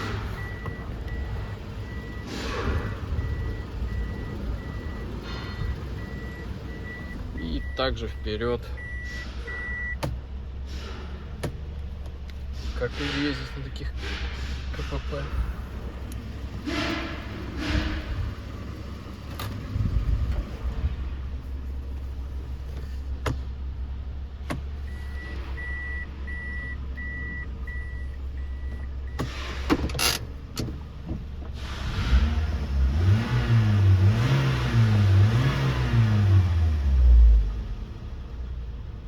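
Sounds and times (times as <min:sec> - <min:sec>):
car engine idling and revving: 0:00.0 - 0:39.0
electronic beeps: 0:03.2 - 0:10.0.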